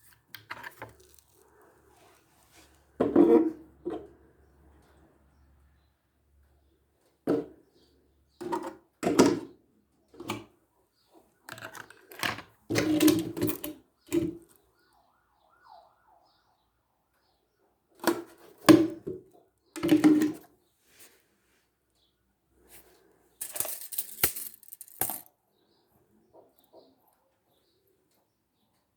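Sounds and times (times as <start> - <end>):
objects knocking and clattering: 19.8 - 20.4, 23.4 - 25.3.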